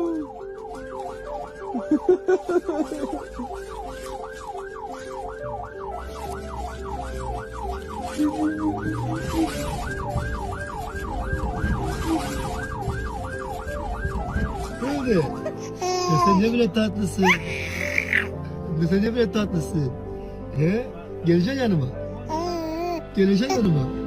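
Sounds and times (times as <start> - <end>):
siren yelping: 0.0 - 16.4, 17.2 - 18.4.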